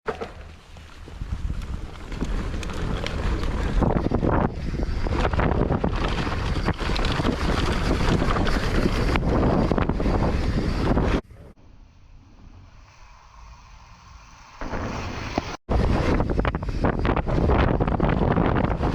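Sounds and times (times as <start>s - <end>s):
bike rattling clicks and knocks: 0.1s - 9.8s
wind rush on microphone: 0.9s - 11.6s, 13.8s - 18.9s.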